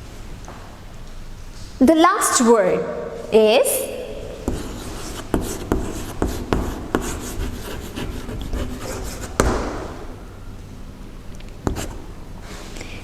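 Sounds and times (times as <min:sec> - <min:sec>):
writing strokes on a board: 0:04.4 - 0:09.7, 0:11.6 - 0:12.1
sharp taps on a board: 0:09.3 - 0:09.8.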